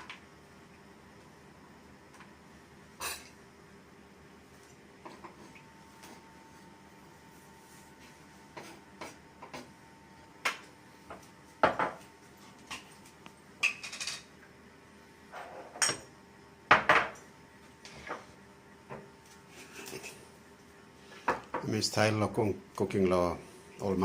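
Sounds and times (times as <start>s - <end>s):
utensils clinking against pans: 13.6s - 14.3s.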